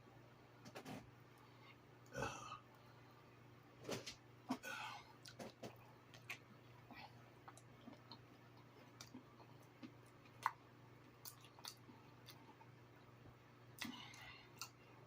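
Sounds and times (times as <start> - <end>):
faint chewing: 5.2 - 13.1, 13.7 - 15.0.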